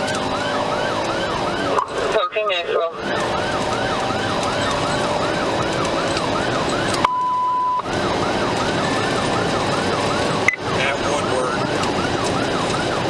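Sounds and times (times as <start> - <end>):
police siren yelping: 0.0 - 13.0
road noise: 0.0 - 13.0
steady beep: 7.0 - 7.9.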